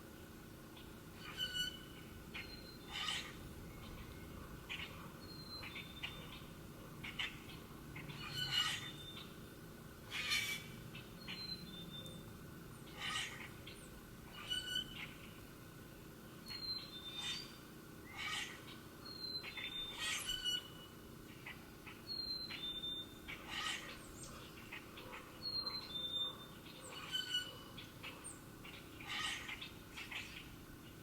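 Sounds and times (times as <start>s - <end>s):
bird chirps and calls: 16.5s - 30.5s.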